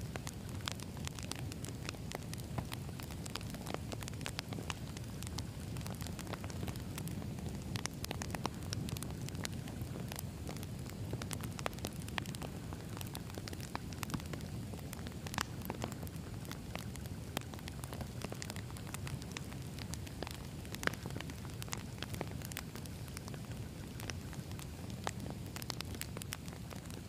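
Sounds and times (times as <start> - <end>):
campfire crackling and popping: 0.0 - 27.0
low rumble of flames: 0.0 - 27.0.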